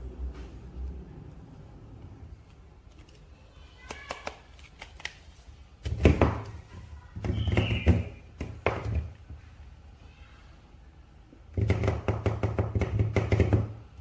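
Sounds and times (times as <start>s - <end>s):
toy packaging clicks: 2.8s - 5.3s.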